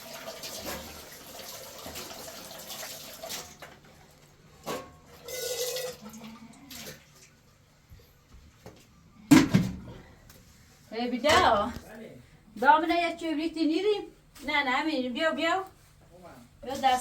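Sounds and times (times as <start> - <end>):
water pouring into a vessel: 0.0 - 4.1, 5.2 - 7.4.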